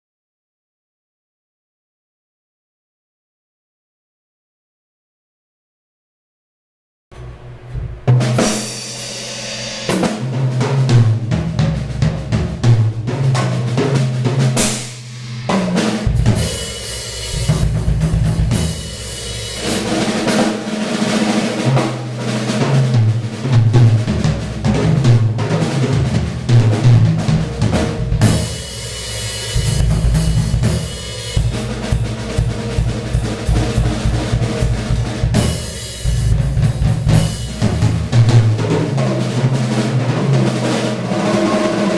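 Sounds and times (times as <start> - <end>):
cymbal wash: 7.2 - 39.8
drum kit solo: 7.2 - 41.9.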